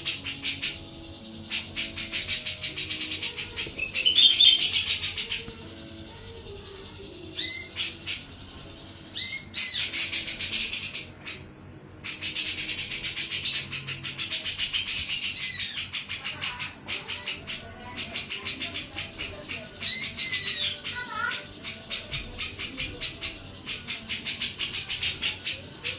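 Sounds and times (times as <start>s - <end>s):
songbird chattering song: 0.0s - 25.9s.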